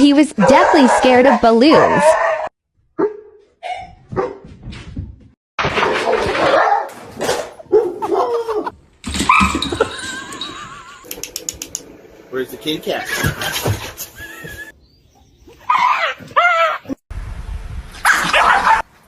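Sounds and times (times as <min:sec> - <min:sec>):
dog barking: 0:00.4 - 0:04.4, 0:06.0 - 0:08.6, 0:18.0 - 0:18.9.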